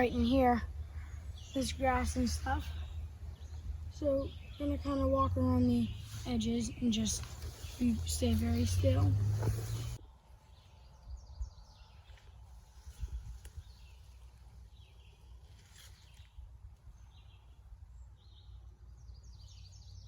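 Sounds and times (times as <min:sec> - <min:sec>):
songbird chirps: 0:00.0 - 0:20.0.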